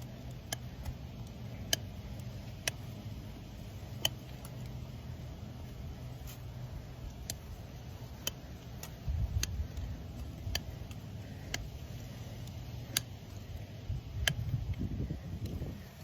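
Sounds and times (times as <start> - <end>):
hoof tools clicking: 0.0 - 15.6.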